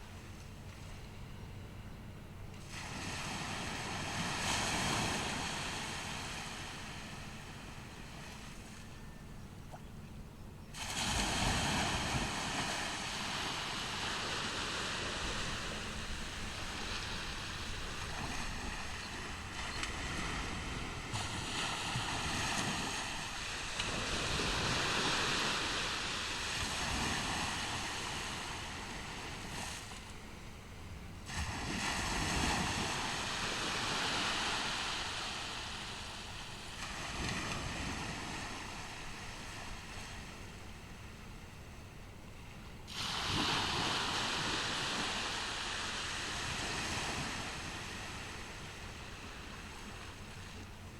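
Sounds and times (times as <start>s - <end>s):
ocean waves breaking: 2.3s - 10.0s, 10.6s - 41.6s, 42.3s - 50.9s
wind rumbling on microphone: 2.8s - 41.5s.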